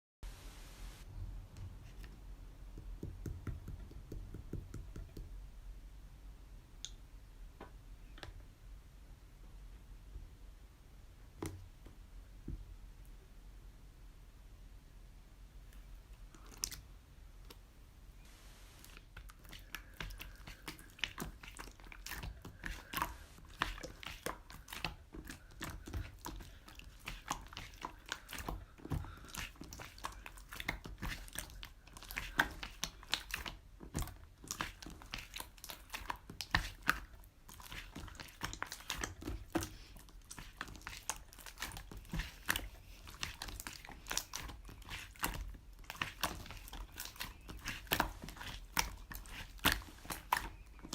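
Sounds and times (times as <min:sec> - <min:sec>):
crunching and crinkling: 0:18.6 - 0:50.9.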